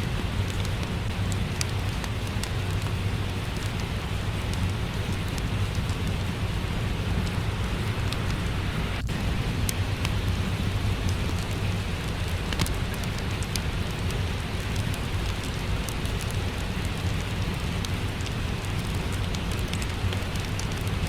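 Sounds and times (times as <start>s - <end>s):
low rumble: 0.0s - 15.8s
fireplace crackling and popping: 0.0s - 21.0s
steady rain falling: 0.0s - 21.0s.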